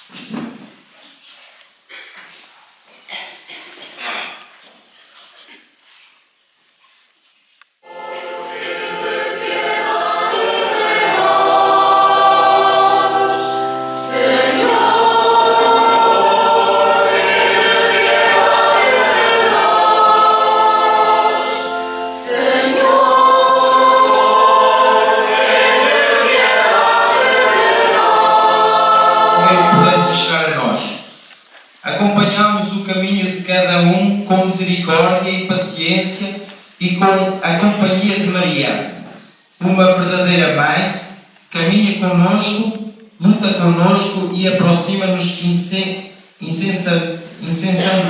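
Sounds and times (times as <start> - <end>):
church choir singing a hymn: 7.8 - 31.2, 43.8 - 48.0.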